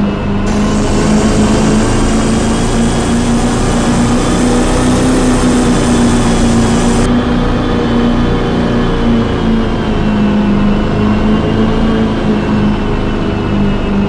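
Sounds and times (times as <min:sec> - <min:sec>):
car engine running steadily: 0:00.5 - 0:07.1
high hiss: 0:00.5 - 0:07.1.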